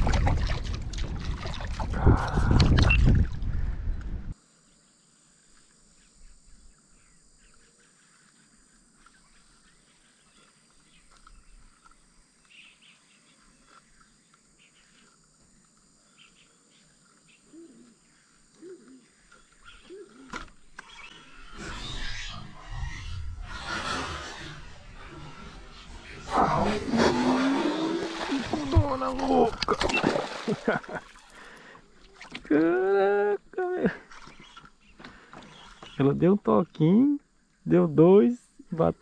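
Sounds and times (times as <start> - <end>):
lower bird calls: 16.1 - 23.7, 34.0 - 36.2.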